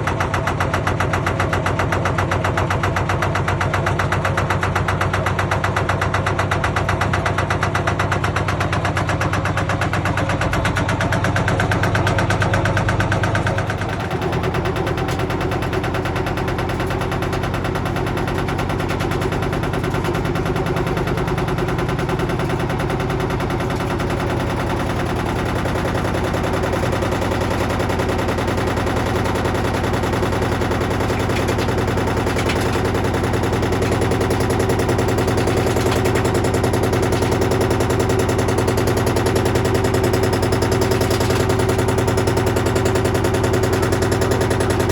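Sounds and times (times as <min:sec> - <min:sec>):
washing machine drum banging: 0:10.8 - 0:44.9.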